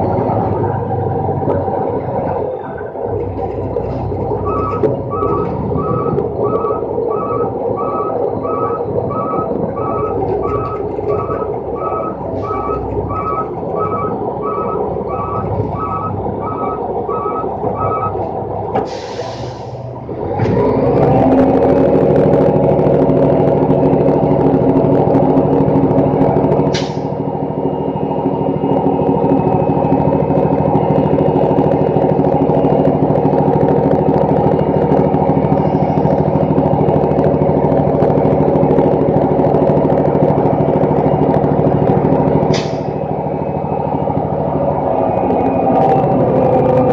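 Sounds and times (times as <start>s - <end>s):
truck diesel engine: 0.0s - 46.9s
reversing alarm beeping: 4.3s - 19.6s
air brake hiss: 18.8s - 19.9s.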